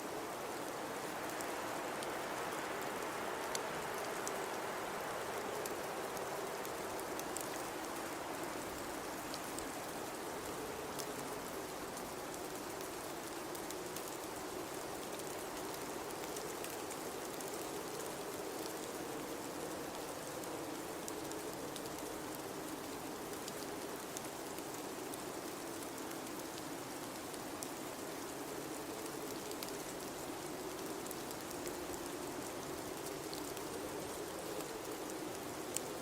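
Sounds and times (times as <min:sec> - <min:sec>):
blizzard wind howling: 0:00.0 - 0:12.4
faint scattered ticks: 0:00.1 - 0:36.0.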